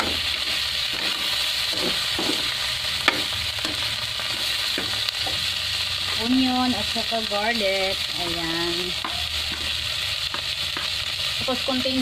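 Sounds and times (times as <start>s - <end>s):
spatula scraping and tapping pan: 0.0s - 5.5s, 9.0s - 11.0s
food sizzling in hot oil: 0.0s - 12.0s.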